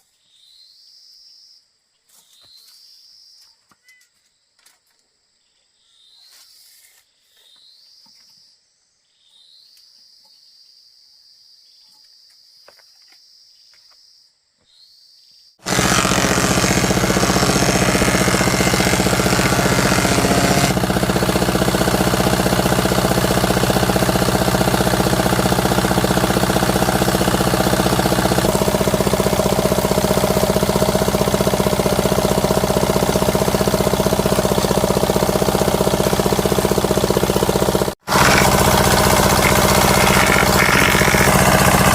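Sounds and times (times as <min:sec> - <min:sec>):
motor-driven power tool running: 0:15.6 - 0:41.9.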